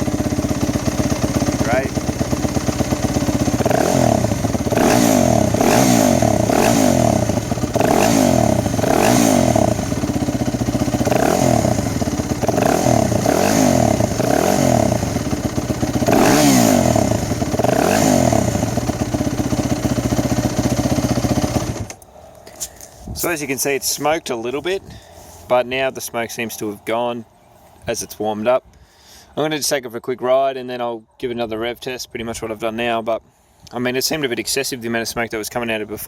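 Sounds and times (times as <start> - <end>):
motorcycle engine throttle blips: 0.0 - 22.1.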